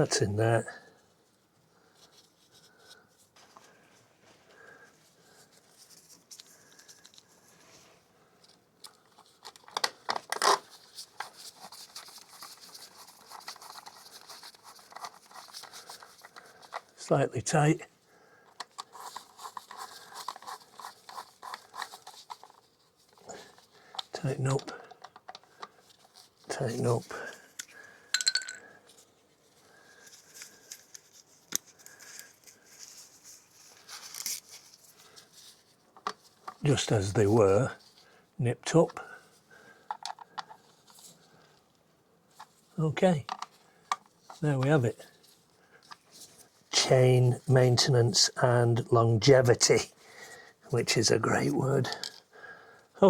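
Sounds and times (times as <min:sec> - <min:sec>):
small clicks and scrapes of tools: 0:08.4 - 0:17.0, 0:18.4 - 0:27.8, 0:28.9 - 0:36.6, 0:39.8 - 0:44.4, 0:45.2 - 0:46.5, 0:51.9 - 0:52.3
hand tools clicking and scraping: 0:18.5 - 0:22.6.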